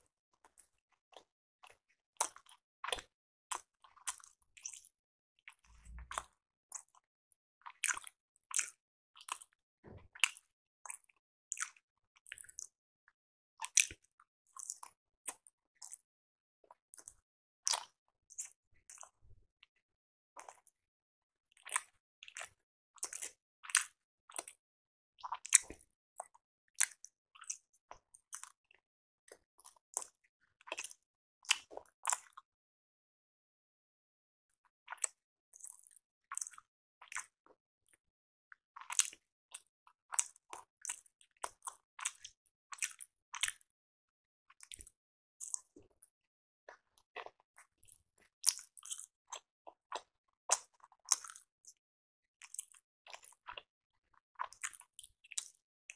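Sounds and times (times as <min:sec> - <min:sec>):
chewing with mouth clicks: 0:17.7 - 0:19.1, 0:21.5 - 0:24.6, 0:29.6 - 0:32.4, 0:34.9 - 0:37.3, 0:38.8 - 0:43.6, 0:44.6 - 0:46.0, 0:46.8 - 0:51.5, 0:52.4 - 0:55.6.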